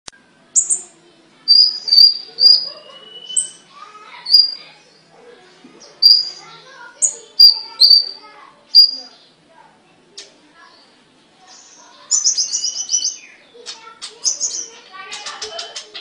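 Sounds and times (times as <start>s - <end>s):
songbird whistling: 1.5s - 3.6s, 4.2s - 4.7s, 6.0s - 8.2s, 8.8s - 9.2s.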